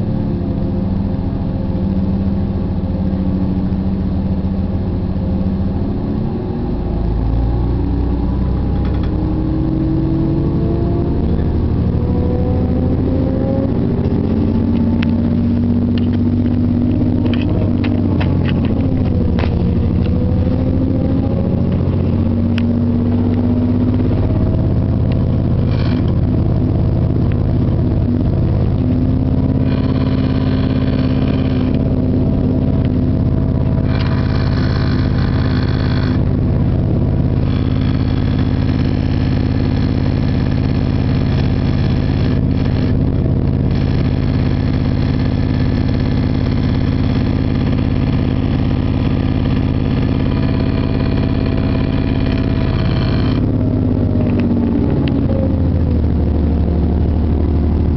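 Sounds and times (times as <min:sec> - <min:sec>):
wheel and rail noise: 0:14.0 - 0:20.6, 0:24.1 - 0:32.0, 0:32.7 - 0:53.5.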